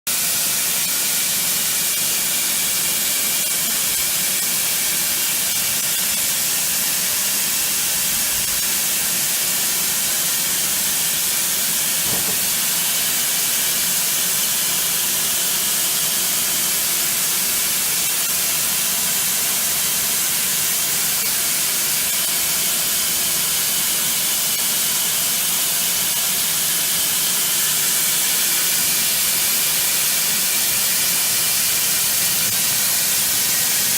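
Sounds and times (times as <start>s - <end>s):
machining centre hissing: 3.0s - 14.2s.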